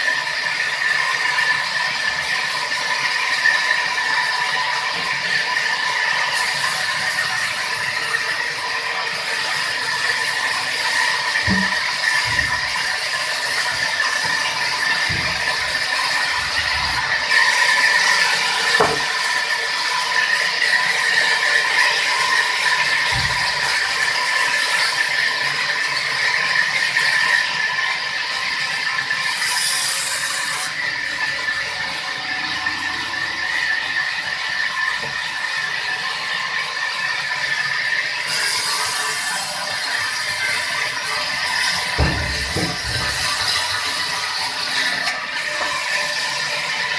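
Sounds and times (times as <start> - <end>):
saw cutting wood: 0.0 - 46.9
dull knocks: 42.0 - 43.3.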